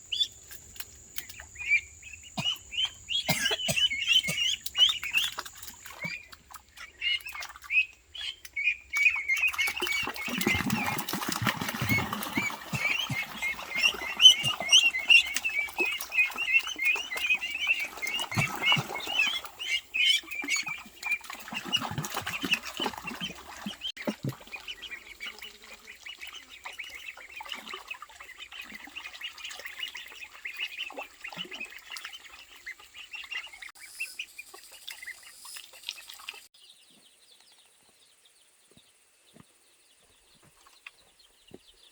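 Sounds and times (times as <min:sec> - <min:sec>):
young birds peeping: 0:00.0 - 0:41.9
ducks quacking: 0:01.7 - 0:06.2, 0:07.0 - 0:34.3.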